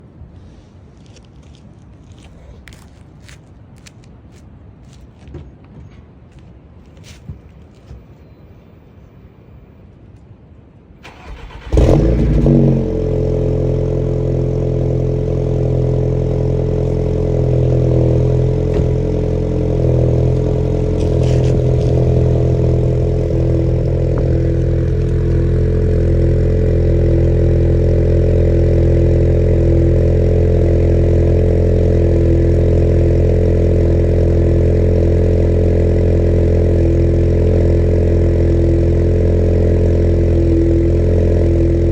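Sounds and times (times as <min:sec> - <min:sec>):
car engine starting and idling: 0:11.0 - 0:41.9.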